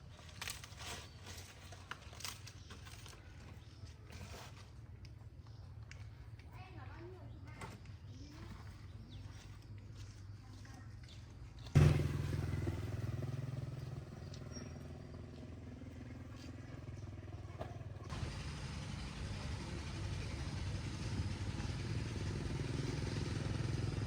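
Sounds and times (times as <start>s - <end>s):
engine humming: 11.7s - 24.0s.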